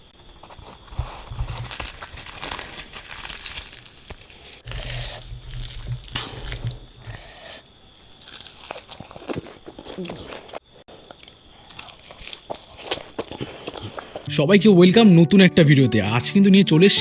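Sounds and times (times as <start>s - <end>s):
crunchy biting and chewing: 0.0s - 14.3s
fried bread being torn: 0.4s - 7.1s, 8.0s - 10.1s.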